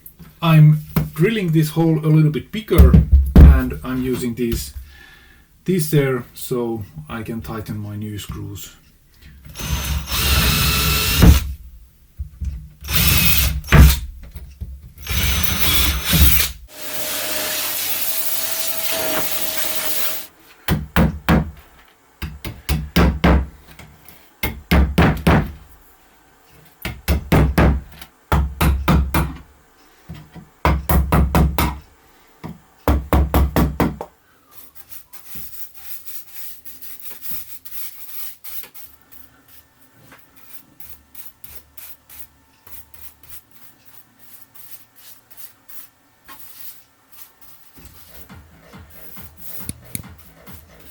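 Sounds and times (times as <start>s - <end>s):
power drill boring into wood: 9.5s - 11.5s, 12.8s - 14.0s, 15.0s - 20.3s.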